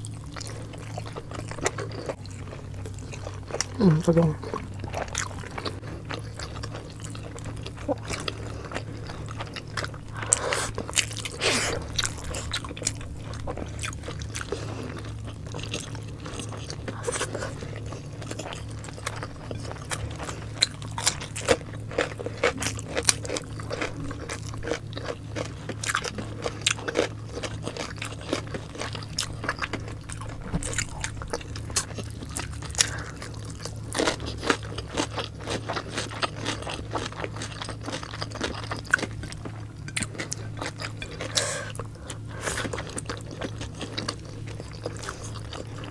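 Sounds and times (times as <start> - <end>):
people chewing: 0.0 - 45.9
steady low hum: 0.0 - 45.9.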